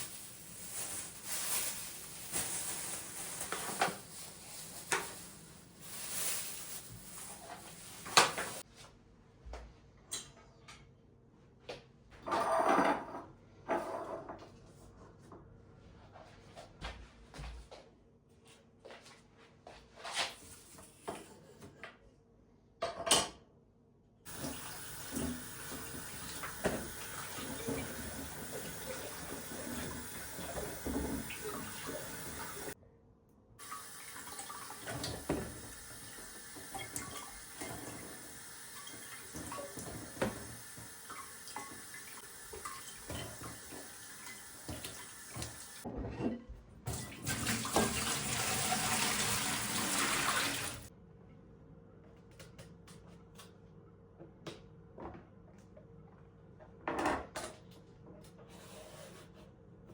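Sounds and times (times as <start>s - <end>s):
clatter of things being handled: 0.0s - 8.6s
tap running into a sink: 24.3s - 32.7s, 33.6s - 45.8s, 46.9s - 50.8s.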